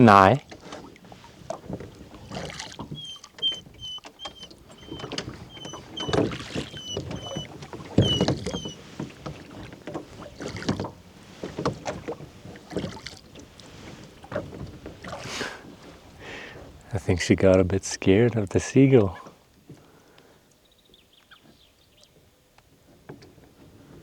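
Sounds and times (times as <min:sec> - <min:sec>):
oars knocking and splashing: 0:00.0 - 0:20.0
gull calling: 0:02.8 - 0:08.8.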